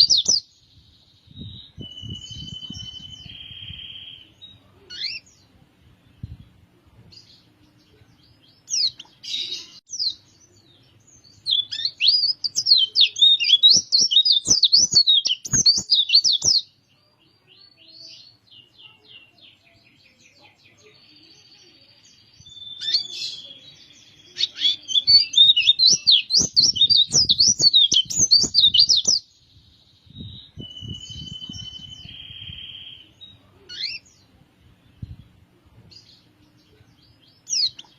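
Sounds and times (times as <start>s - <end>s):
bird chirps: 0.0s - 5.5s, 7.3s - 35.4s
bird twittering song: 0.0s - 37.9s.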